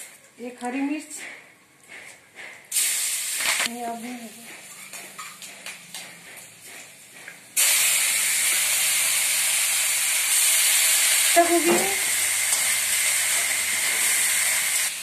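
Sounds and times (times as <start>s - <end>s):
cabbage sizzling in hot oil: 2.7s - 3.7s, 7.6s - 15.0s.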